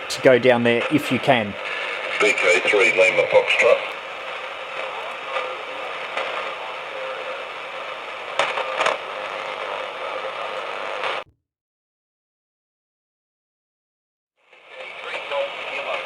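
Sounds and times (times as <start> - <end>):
radio receiver hiss: 0.0 - 11.2, 14.5 - 16.0
sharp radio clicks: 0.0 - 11.3, 14.6 - 16.0.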